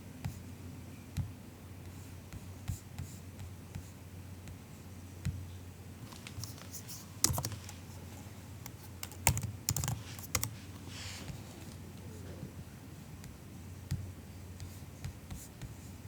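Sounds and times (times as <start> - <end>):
low background hum: 0.0 - 16.0
soft keyboard typing: 6.0 - 10.9.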